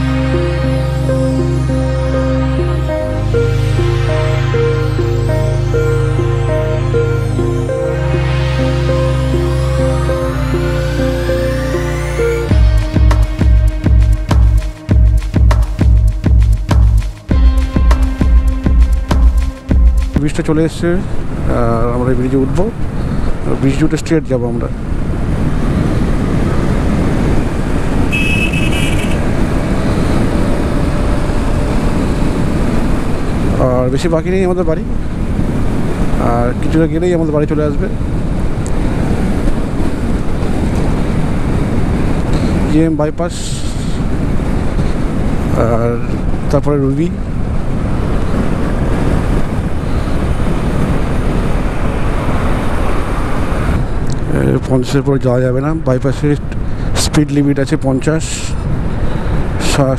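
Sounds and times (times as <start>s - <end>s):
motorcycle wind and road noise: 0.0s - 59.9s
motorcycle horn: 28.0s - 33.1s.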